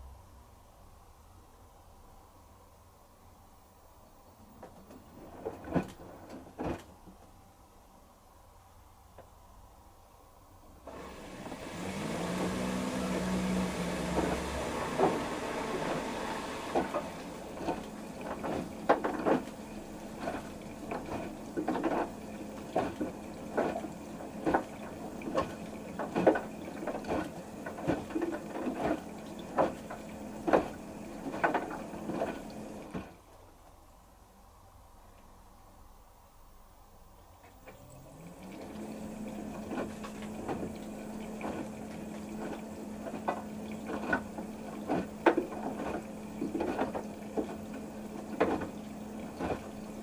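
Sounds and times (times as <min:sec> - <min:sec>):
washing machine motor hum: 0:10.7 - 0:33.4, 0:36.9 - 0:50.0
pump running: 0:10.8 - 0:33.2, 0:37.5 - 0:50.0
water rushing in: 0:10.9 - 0:33.0.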